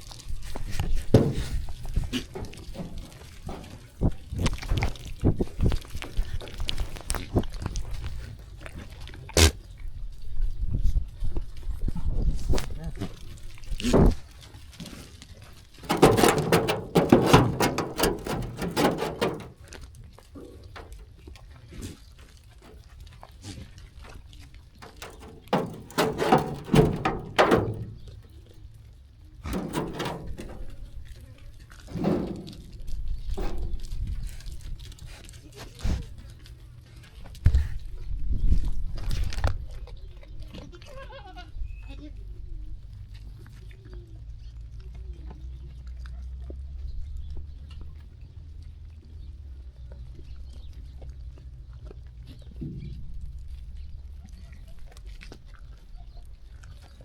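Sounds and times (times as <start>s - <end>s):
sheep hooves and grazing: 0.0s - 57.0s.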